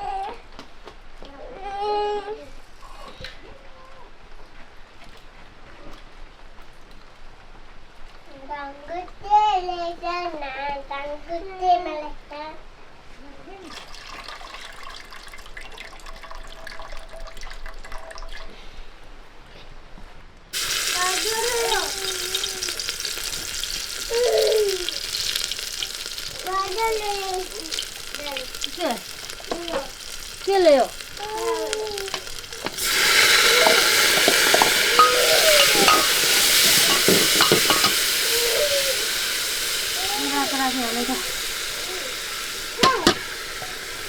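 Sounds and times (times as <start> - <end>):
food sizzling in hot oil: 20.5 - 44.0
water splashing and dripping: 20.6 - 37.9
stirring clinks and scrapes: 31.9 - 38.1, 42.8 - 43.7.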